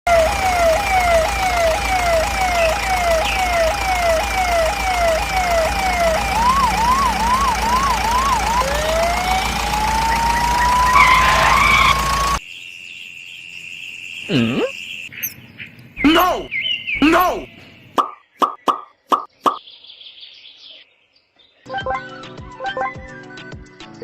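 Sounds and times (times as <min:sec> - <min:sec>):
electronic siren: 0:00.1 - 0:12.4.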